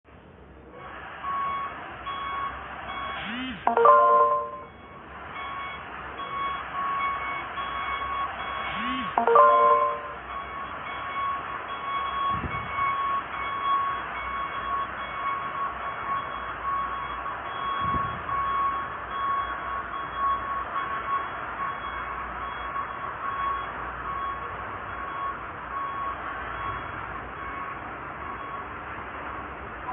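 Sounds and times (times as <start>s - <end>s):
reversing alarm beeping: 1.2s - 28.8s
chime-like multi-tone call: 3.7s - 4.8s, 8.8s - 10.5s.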